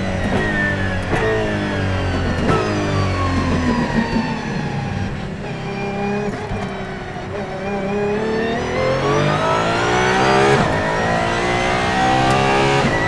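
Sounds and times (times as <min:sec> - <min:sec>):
downshift cracks: 0:00.0 - 0:04.5, 0:06.1 - 0:07.9, 0:09.6 - 0:13.0
car engine slowing: 0:00.0 - 0:13.0.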